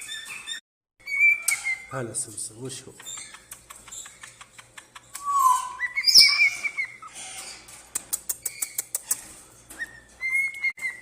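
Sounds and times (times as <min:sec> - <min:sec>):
parrot whistling and squawking: 0:00.0 - 0:01.9, 0:05.2 - 0:07.4, 0:09.8 - 0:11.0.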